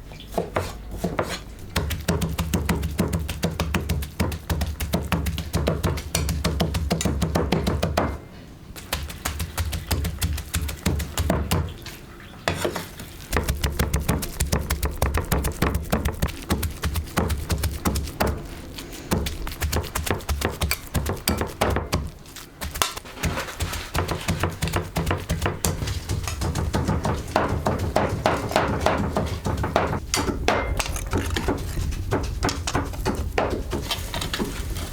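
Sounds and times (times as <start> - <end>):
kitchen knocking and clatter: 1.2 - 8.2, 19.1 - 34.8.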